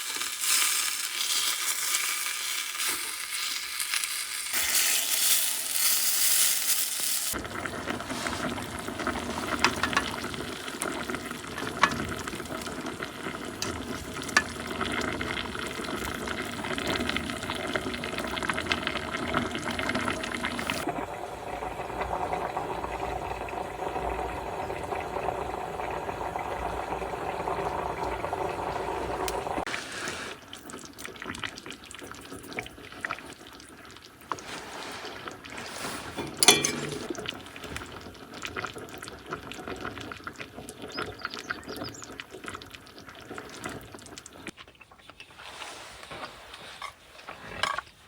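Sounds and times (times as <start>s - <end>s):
water running into container: 4.6s - 45.9s.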